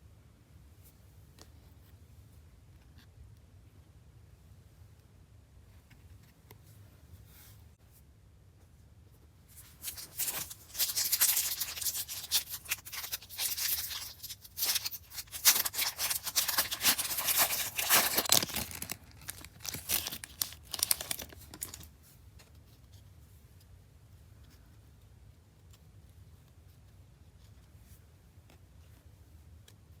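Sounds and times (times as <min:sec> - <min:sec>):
card pack wrapper tearing: 0:09.6 - 0:21.9.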